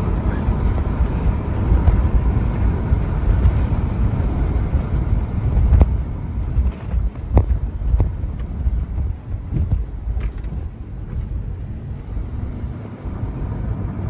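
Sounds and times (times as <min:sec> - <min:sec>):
road and engine rumble: 0:00.0 - 0:14.0
wind buffeting microphone: 0:00.0 - 0:14.0.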